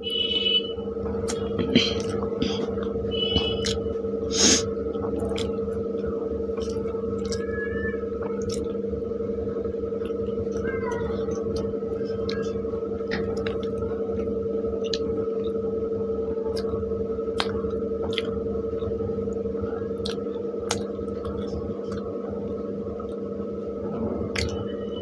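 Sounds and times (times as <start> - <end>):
steady hum: 0.0 - 25.0
wet chewing: 1.2 - 3.8, 4.9 - 7.4, 8.2 - 8.8, 10.0 - 15.6, 16.4 - 23.2.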